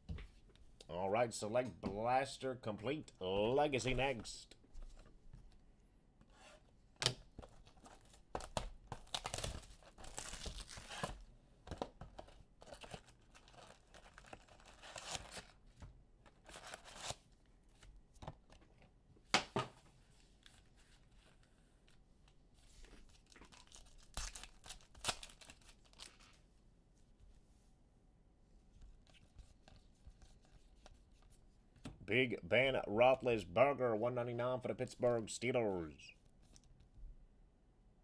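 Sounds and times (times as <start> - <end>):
wrappers tearing and crinkling: 7.9 - 11.2, 12.6 - 15.6, 23.1 - 26.3.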